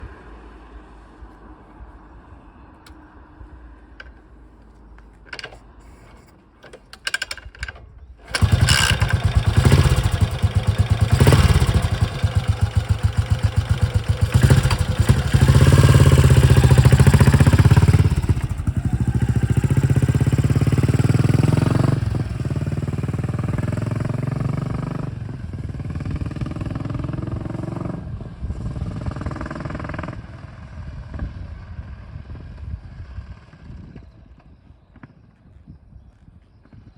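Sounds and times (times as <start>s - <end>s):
starter clicks: 4.0s - 18.5s
motorcycle engine starting and revving: 5.0s - 34.2s.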